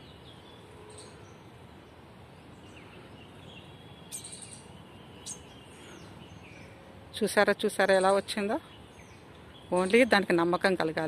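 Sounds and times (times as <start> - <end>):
high bird chirps: 3.4 - 6.7.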